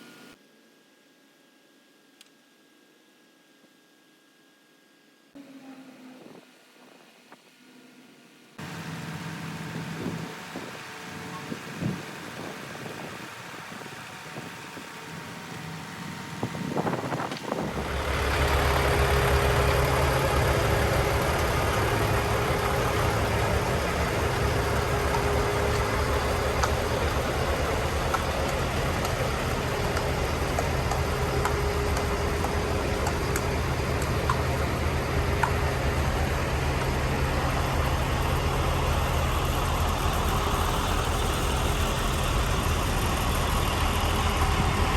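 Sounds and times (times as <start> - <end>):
diesel truck engine idling: 8.6 - 44.9.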